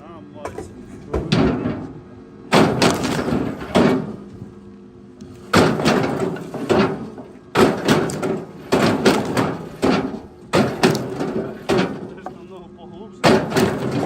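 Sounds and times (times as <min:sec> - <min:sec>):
firewood knocking and clattering: 0:02.5 - 0:04.2, 0:05.5 - 0:12.5, 0:13.2 - 0:14.0.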